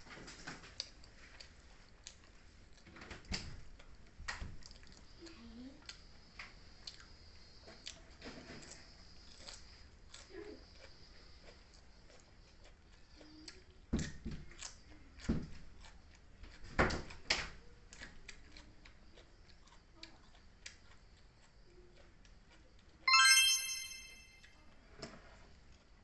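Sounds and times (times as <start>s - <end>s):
bright ringing chime: 23.1s - 24.4s.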